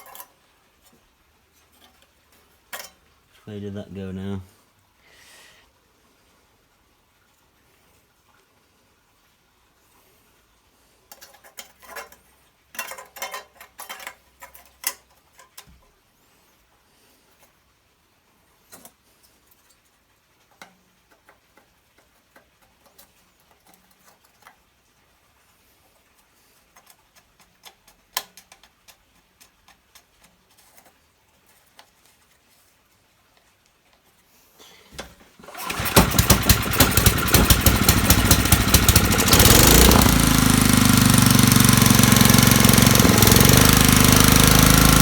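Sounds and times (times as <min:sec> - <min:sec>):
hand tools clicking and tapping: 0:26.8 - 0:30.9.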